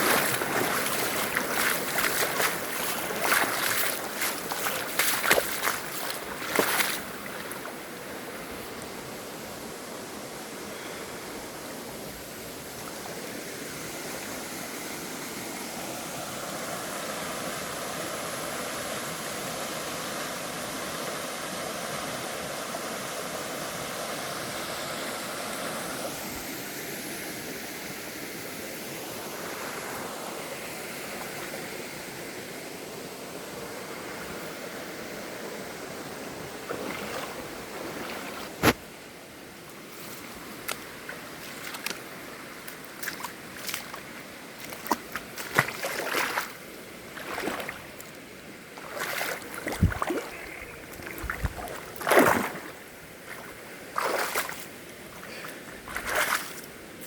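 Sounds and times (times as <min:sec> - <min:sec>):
waterfall roaring: 0:00.0 - 0:04.8.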